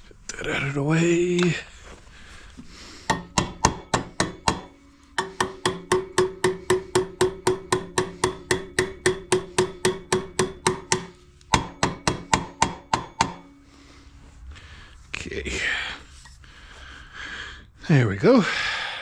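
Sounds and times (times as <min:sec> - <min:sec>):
small hammer tapping on metal: 0:03.1 - 0:13.6.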